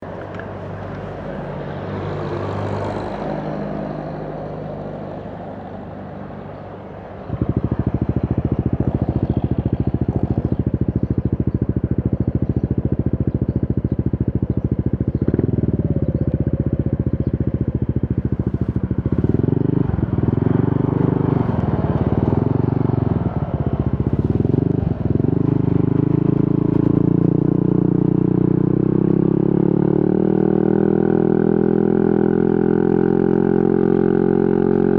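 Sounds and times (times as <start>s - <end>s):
scooter engine idling and revving: 0.0s - 34.9s.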